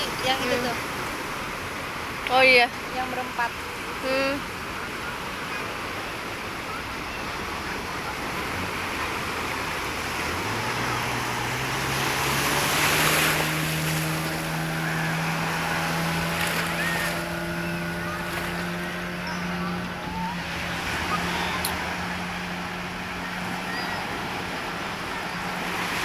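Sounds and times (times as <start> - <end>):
motorboat engine humming: 0.0 - 26.0
surf washing: 0.0 - 26.0
wind: 0.0 - 26.0.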